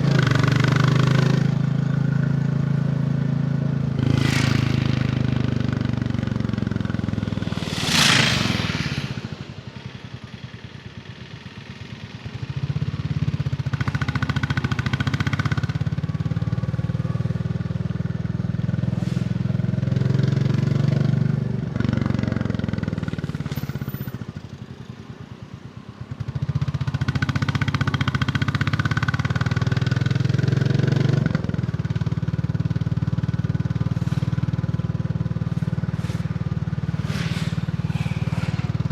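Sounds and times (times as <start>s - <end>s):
short loud rush: 4.0s - 10.6s, 33.8s - 38.9s
motorcycle engine pulling: 32.6s - 38.9s.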